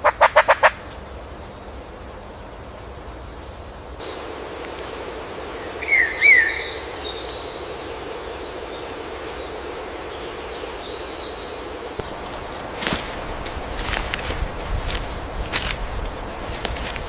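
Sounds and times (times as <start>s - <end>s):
steady hiss: 0.6s - 17.0s
loud whistled bird calls: 5.6s - 8.6s.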